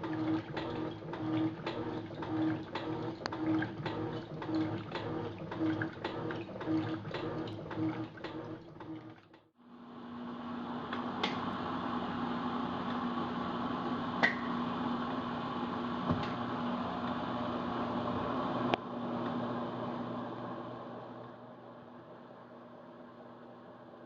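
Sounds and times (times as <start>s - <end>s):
washing machine agitating: 0.0s - 9.5s.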